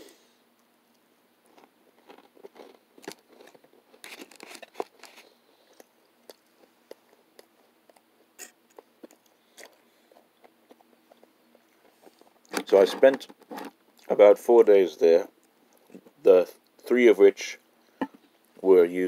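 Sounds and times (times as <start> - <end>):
person chewing toast: 0.9 - 12.5.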